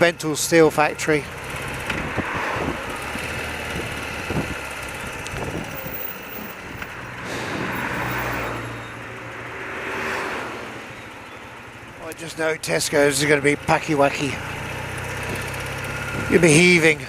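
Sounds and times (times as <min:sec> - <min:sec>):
motorcycle engine running: 0:00.0 - 0:09.7, 0:10.7 - 0:17.0
wind noise on microphone: 0:01.9 - 0:03.0, 0:03.6 - 0:06.0.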